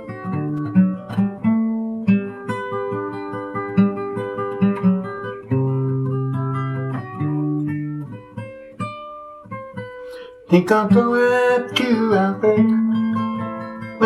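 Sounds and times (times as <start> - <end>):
fingerstyle acoustic guitar: 0.0 - 14.0.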